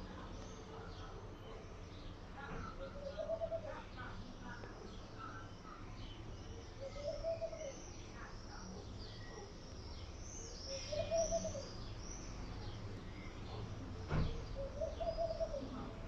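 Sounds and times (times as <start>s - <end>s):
small birds chirping: 0.0s - 16.0s
dove cooing: 2.5s - 3.9s, 6.8s - 7.8s, 10.7s - 11.8s, 14.5s - 16.0s.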